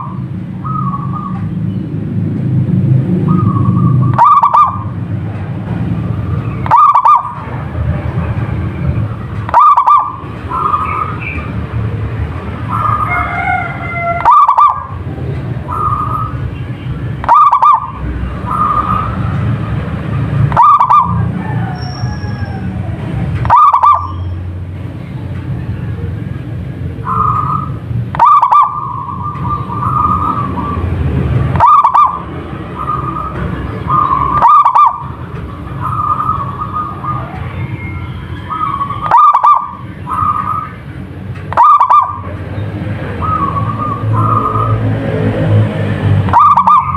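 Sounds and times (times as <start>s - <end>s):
dove cooing: 3.2s - 5.0s, 6.6s - 7.4s, 9.5s - 11.4s, 12.7s - 15.0s, 17.2s - 19.2s, 20.5s - 24.2s, 27.0s - 30.9s, 31.6s - 40.7s, 41.5s - 42.3s, 43.1s - 44.8s, 46.3s - 46.9s.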